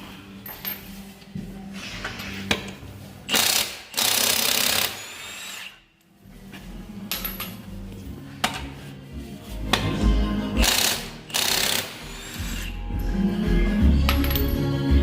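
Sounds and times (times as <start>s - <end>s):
power tool bursts: 3.3s - 5.8s, 10.6s - 12.7s.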